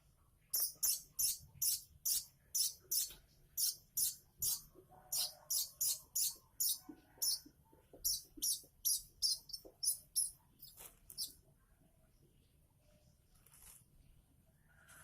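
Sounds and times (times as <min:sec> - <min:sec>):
young bird begging chirps: 0:00.6 - 0:07.4, 0:08.0 - 0:11.3.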